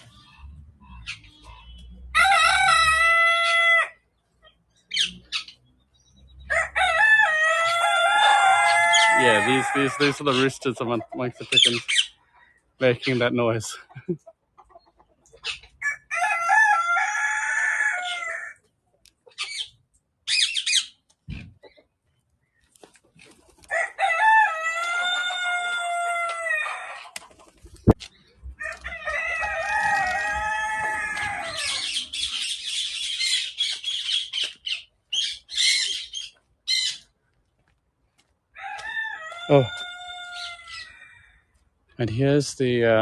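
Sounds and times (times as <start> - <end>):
roosters crowing: 0.0 - 4.1, 6.3 - 12.7, 15.4 - 18.7, 23.4 - 27.5, 28.4 - 37.1, 38.5 - 41.9
chicken clucks and calls: 0.0 - 37.4, 38.1 - 42.0.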